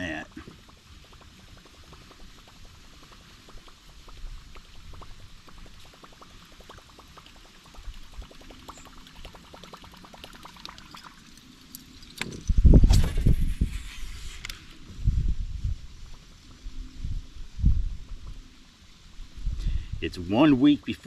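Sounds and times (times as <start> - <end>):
faint low rumble: 12.4 - 20.4.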